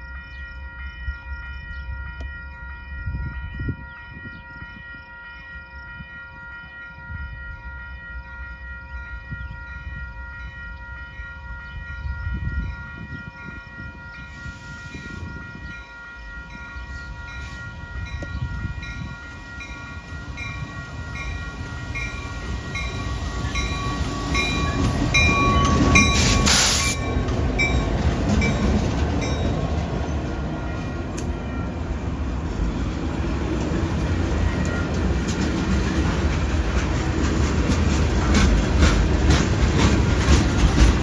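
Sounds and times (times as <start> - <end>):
regular high ringing bell: 0.0 - 29.8
steady high tone: 0.0 - 32.5
train rumbling past: 0.0 - 41.0.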